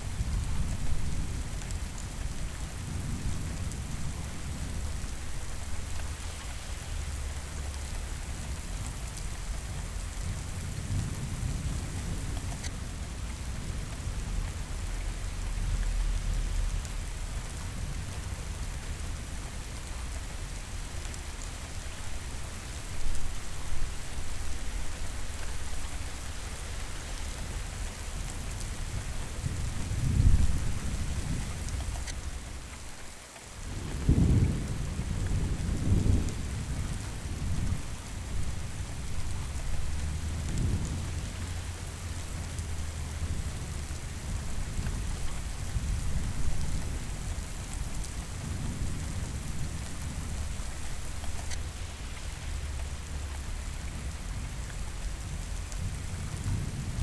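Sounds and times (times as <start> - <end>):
heavy rain: 0.0 - 57.0
rolling thunder: 33.6 - 54.5.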